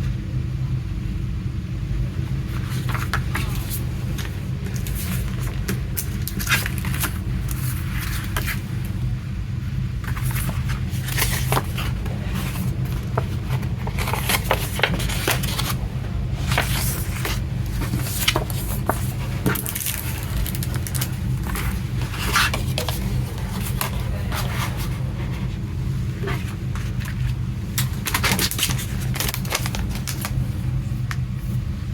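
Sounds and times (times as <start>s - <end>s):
steady low hum: 0.0s - 31.9s
cardboard packaging scraping: 2.5s - 8.9s, 10.0s - 30.6s
packaging clicks: 16.5s - 24.1s, 27.8s - 30.4s.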